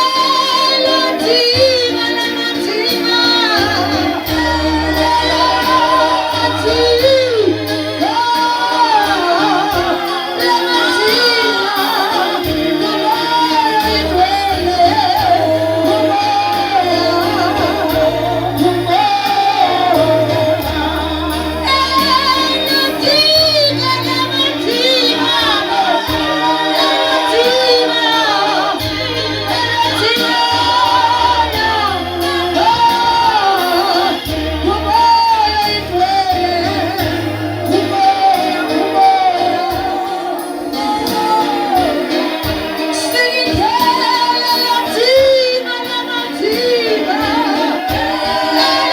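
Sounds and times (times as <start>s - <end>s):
voices singing: 0.0s - 48.9s
electronic keyboard bass chords: 3.1s - 10.2s, 12.4s - 43.9s.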